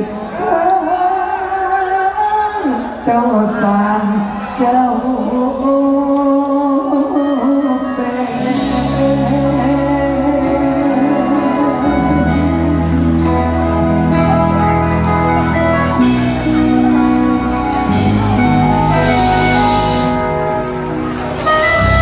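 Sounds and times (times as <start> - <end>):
live band music: 7.2 - 22.0.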